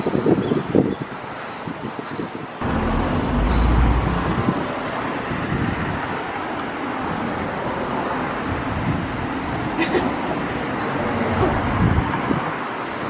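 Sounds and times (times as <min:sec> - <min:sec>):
car road noise: 0:02.6 - 0:05.9.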